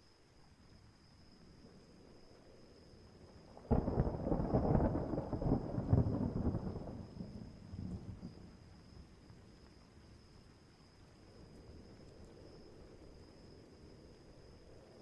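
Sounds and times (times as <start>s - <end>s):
faint rain: 0.0s - 15.0s
thunderclap rumbling: 3.6s - 8.5s.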